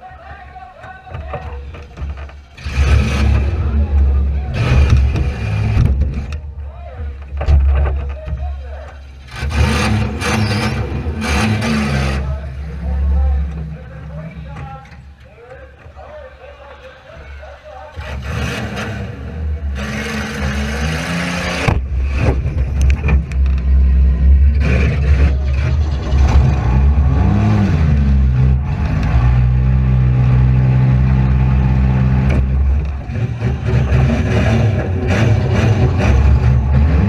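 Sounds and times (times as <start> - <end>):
sharp knocks and rattles: 0.8 - 2.6, 7.1 - 11.6
car engine revving hard: 2.6 - 6.0, 9.3 - 12.4, 18.0 - 22.8, 23.8 - 37.0.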